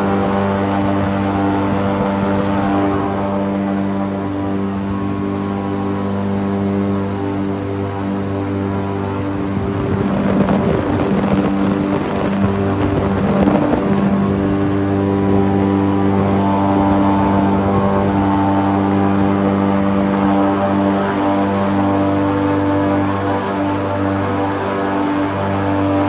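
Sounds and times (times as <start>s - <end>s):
airboat engine and propeller drone: 0.0s - 26.0s.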